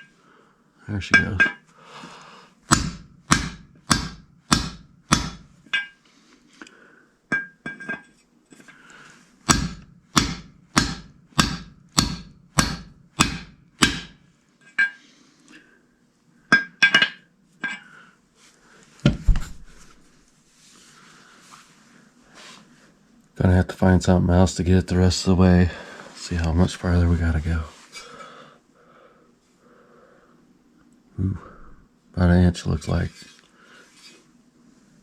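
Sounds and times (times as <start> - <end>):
hammer striking metal socket: 2.7 - 6.0, 9.5 - 14.2.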